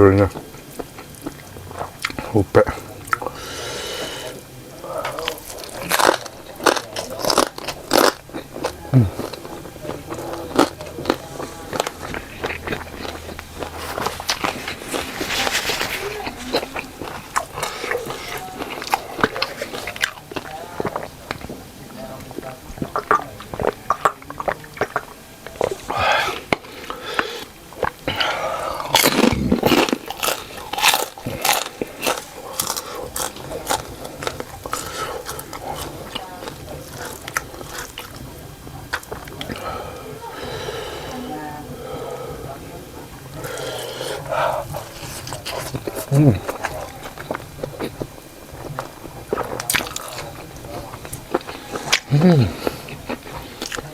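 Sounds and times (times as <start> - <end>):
person chewing crunchy food: 0.0 - 41.1, 43.2 - 53.9.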